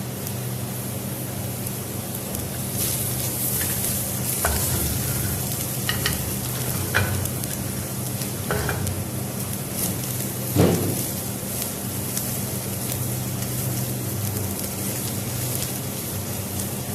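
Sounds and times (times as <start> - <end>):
food sizzling in a pan: 0.1 - 16.9
utensil scraping and knocking pan: 3.5 - 7.5, 8.5 - 9.0.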